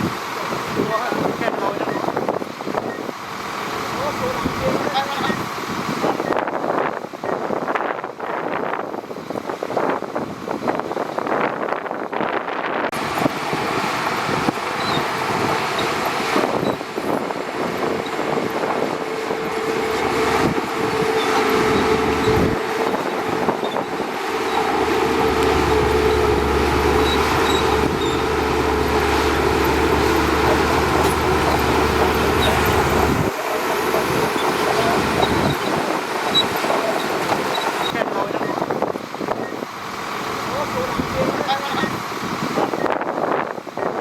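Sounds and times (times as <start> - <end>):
bulldozer diesel engine whine: 0.0 - 9.7, 12.7 - 44.0
deep low engine rumble: 12.6 - 42.8.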